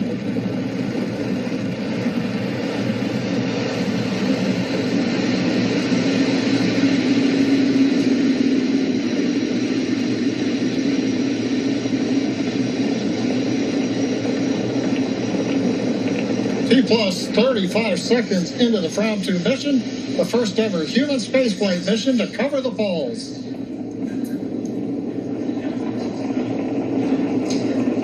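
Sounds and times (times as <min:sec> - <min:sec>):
rocket engines rumbling: 0:00.0 - 0:28.0.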